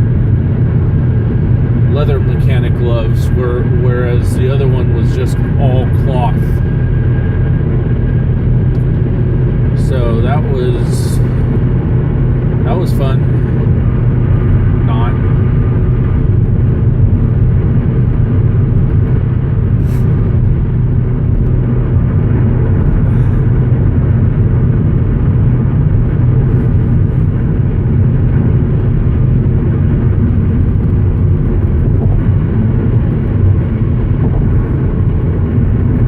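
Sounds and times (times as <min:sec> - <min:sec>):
engine and road noise in car cabin: 0:00.0 - 0:36.0.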